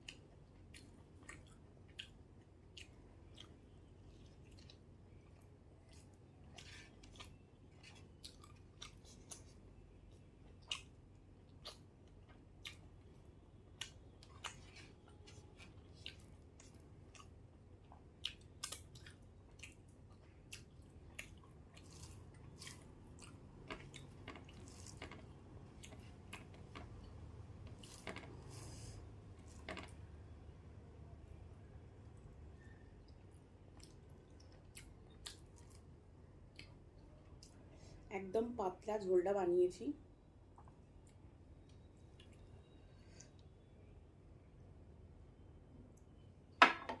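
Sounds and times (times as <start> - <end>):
close-up chewing with wet mouth clicks: 0.0 - 27.1, 32.6 - 35.9, 36.5 - 37.6.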